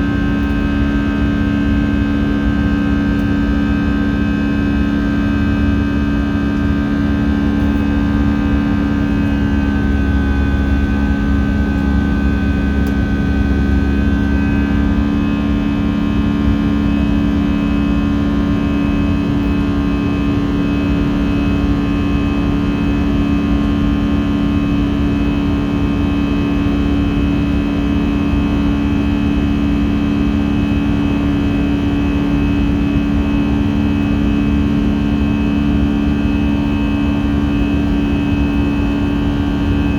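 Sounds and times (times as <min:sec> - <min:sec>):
faint high whine: 0:00.0 - 0:22.6
jet engine cabin drone: 0:00.0 - 0:39.9.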